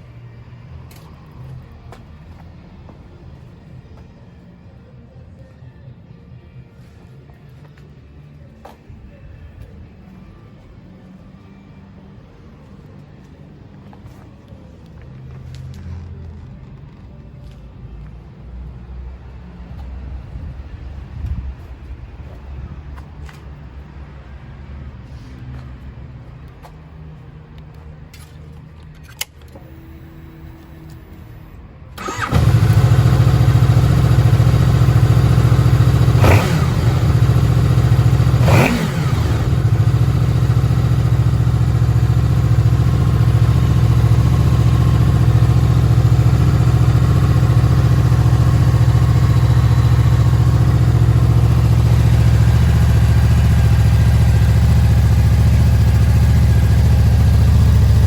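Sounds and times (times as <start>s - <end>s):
motorcycle engine starting and idling: 28.2s - 58.0s
motorcycle throttle blips: 32.0s - 58.0s.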